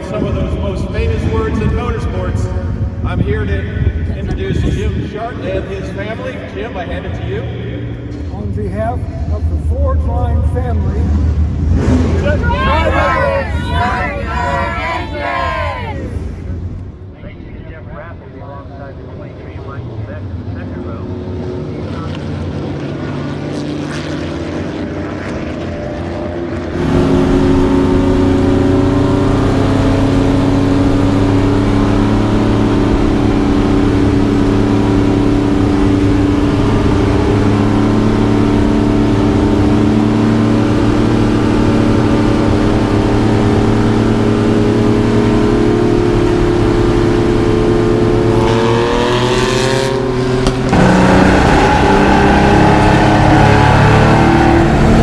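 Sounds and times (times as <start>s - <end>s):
race car engine running: 26.6s - 55.0s.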